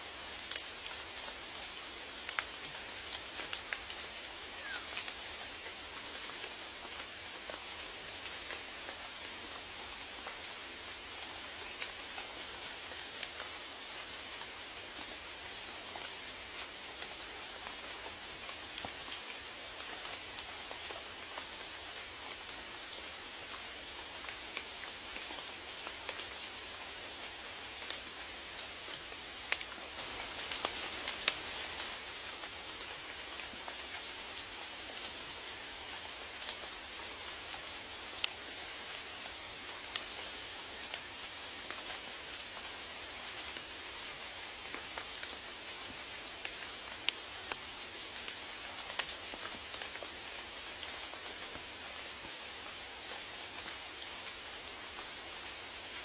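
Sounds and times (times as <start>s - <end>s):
rain hiss: 0.0s - 56.0s
raindrops ticking: 44.4s - 51.7s.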